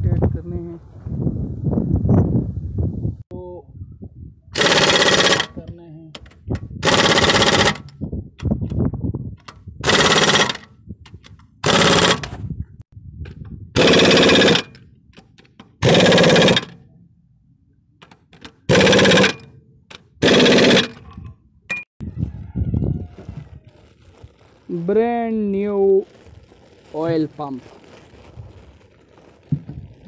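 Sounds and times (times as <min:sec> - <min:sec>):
impact wrench rattling bursts: 0:04.6 - 0:05.6, 0:06.8 - 0:08.0, 0:09.8 - 0:10.7, 0:11.6 - 0:12.4, 0:13.8 - 0:16.8, 0:18.0 - 0:21.0.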